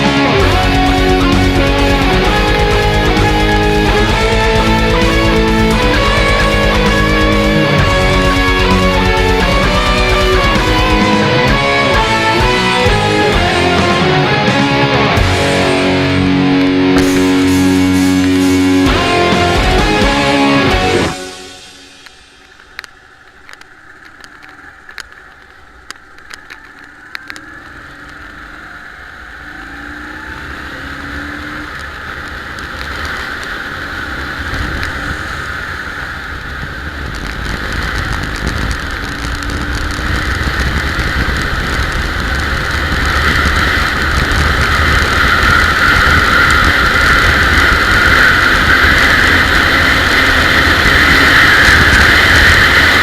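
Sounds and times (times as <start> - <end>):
motorcycle engine riding: 0.0 - 53.0
sharp clicks: 22.0 - 28.4.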